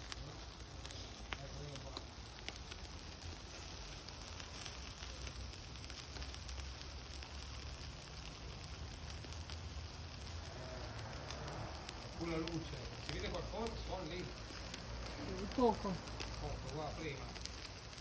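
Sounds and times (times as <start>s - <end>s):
cooking fire hissing: 0.0s - 18.0s
fire crackles: 0.0s - 18.0s.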